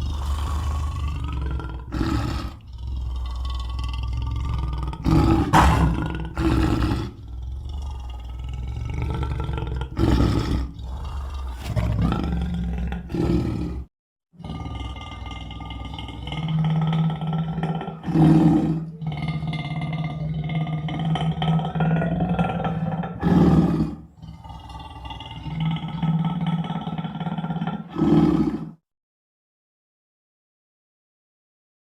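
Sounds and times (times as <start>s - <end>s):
monster growling and roaring: 0.0s - 13.8s.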